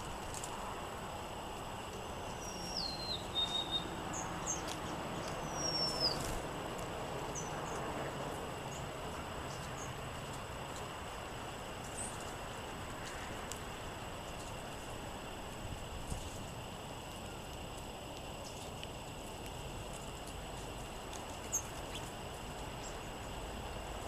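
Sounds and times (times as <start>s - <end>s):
bird chips: 1.8s - 6.5s, 8.6s - 10.9s, 17.2s - 23.4s
songbirds whistling: 2.0s - 6.4s.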